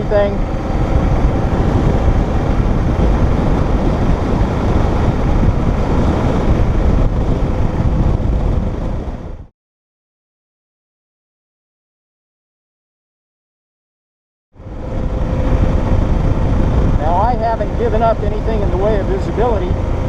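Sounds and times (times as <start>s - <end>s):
motorcycle engine: 0.0s - 9.5s, 14.6s - 20.0s
wind rushing over microphone: 0.0s - 9.5s, 14.6s - 20.0s.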